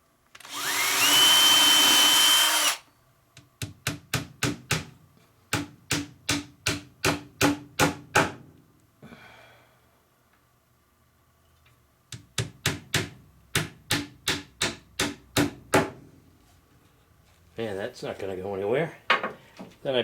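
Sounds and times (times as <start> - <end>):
power drill boring into wood: 0.4 - 2.8
hammer striking a nail: 3.6 - 4.9, 5.5 - 8.4, 12.2 - 16.0.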